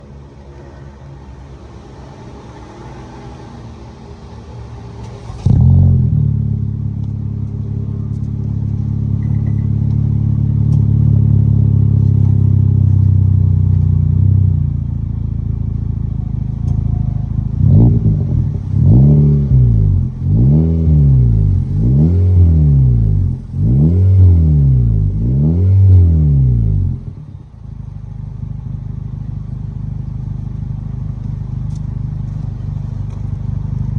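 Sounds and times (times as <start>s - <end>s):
car engine idling: 0.0s - 33.9s
engine revving in throttle blips: 5.0s - 27.6s.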